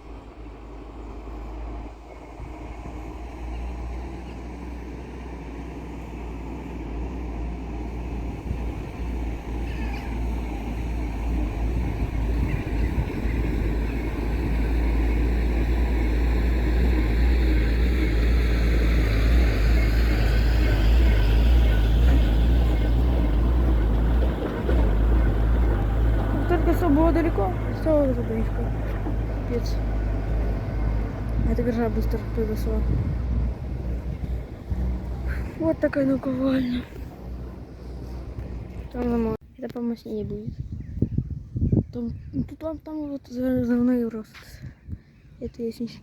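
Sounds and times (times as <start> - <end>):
vehicle driving with low rumble: 0.0 - 46.0.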